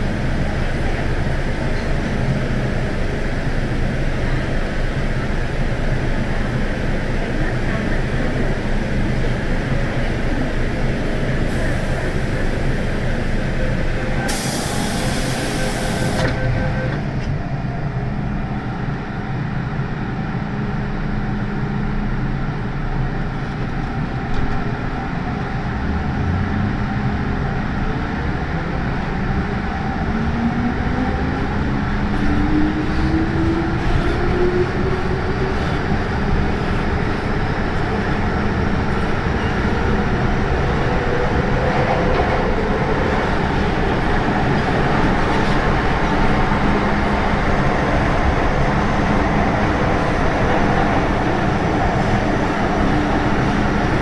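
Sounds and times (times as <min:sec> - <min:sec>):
burst of hiss: 0:14.3 - 0:16.2
train wheels rumbling: 0:22.1 - 0:54.0.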